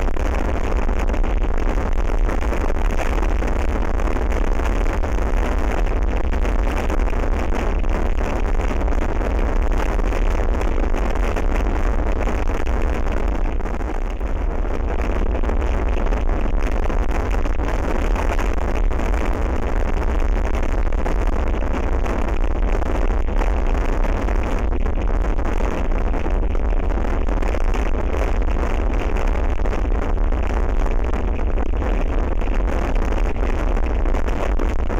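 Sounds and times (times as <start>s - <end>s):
wind blowing across microphone: 0.0s - 34.9s.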